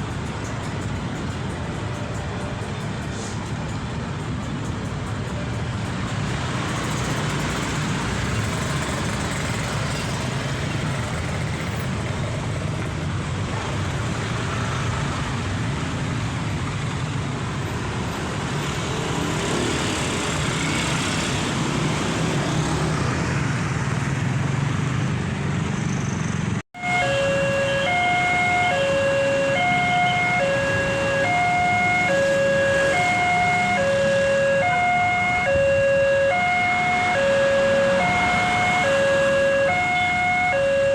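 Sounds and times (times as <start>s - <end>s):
road traffic rumble: 0.0s - 40.9s
level-crossing two-tone alarm: 26.8s - 40.9s.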